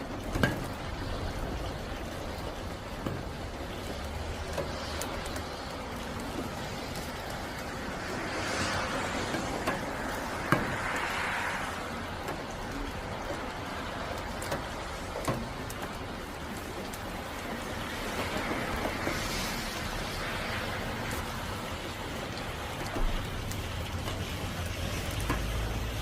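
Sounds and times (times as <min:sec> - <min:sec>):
drips tapping: 0:00.0 - 0:26.0
rain hiss: 0:00.0 - 0:26.0.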